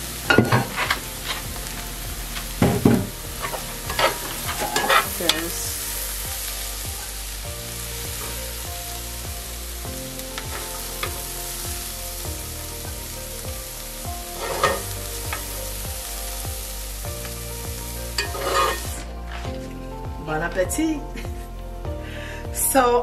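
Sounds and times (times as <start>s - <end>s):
fried rice sizzling in a pan: 0.0s - 19.4s
fork scraping a pan: 2.4s - 5.6s, 14.4s - 14.9s, 18.2s - 18.9s.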